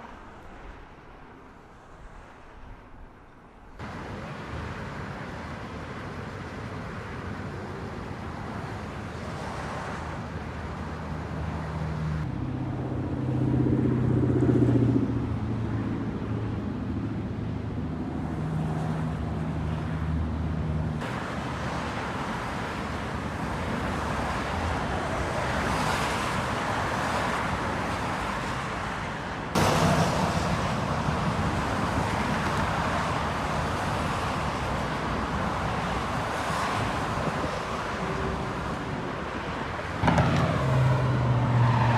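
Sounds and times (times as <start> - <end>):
freeway traffic: 0.0 - 41.9
heavy engine humming: 29.6 - 36.2.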